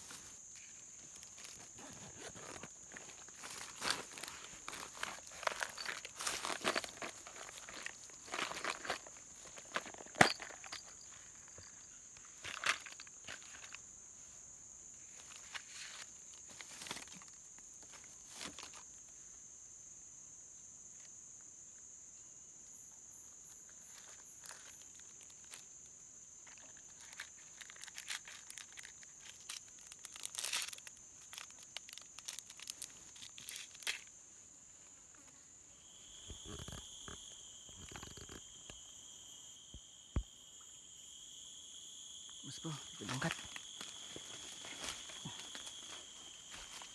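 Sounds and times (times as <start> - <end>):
rustling and crinkling handling: 0.0 - 14.4, 15.0 - 19.2, 23.9 - 34.1, 43.0 - 46.9
high-pitched insect buzz: 21.0 - 46.9
lower steady buzz: 35.0 - 46.9.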